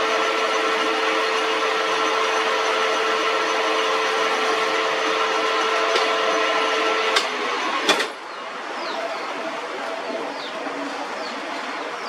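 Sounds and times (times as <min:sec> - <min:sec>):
metal lathe running with whine: 0:00.0 - 0:08.1.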